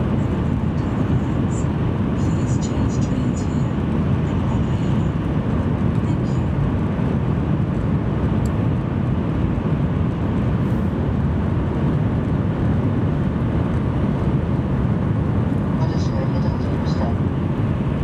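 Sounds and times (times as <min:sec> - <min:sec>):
train cabin rumble: 0:15.1 - 0:18.0.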